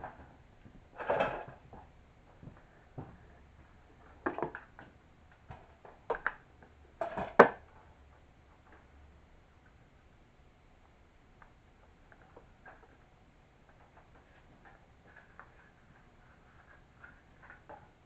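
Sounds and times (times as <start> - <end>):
objects knocking and clattering: 0.0 - 7.8.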